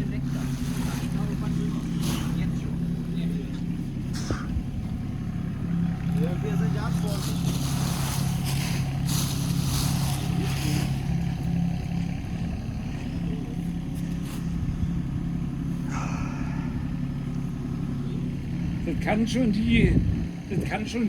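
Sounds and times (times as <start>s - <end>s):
excavator diesel engine running: 0.0s - 21.0s
bucket digging in soil: 0.2s - 3.0s, 6.0s - 11.9s.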